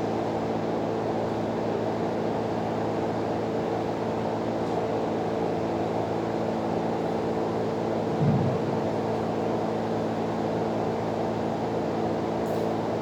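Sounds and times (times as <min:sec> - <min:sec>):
steady mechanical drone: 0:06.1 - 0:12.1.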